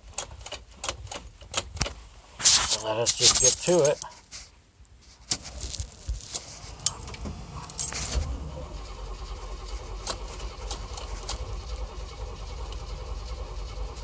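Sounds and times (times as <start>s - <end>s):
keys jingling in ignition: 2.4s - 4.2s, 5.6s - 8.3s
car engine starting and idling: 6.6s - 14.0s.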